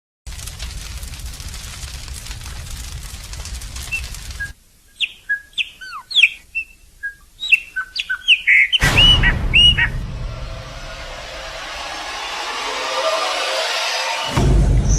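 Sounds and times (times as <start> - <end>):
dense crackling noise: 0.2 - 8.2, 8.8 - 14.6
birds singing: 3.9 - 10.0
rush of noise: 8.8 - 14.9.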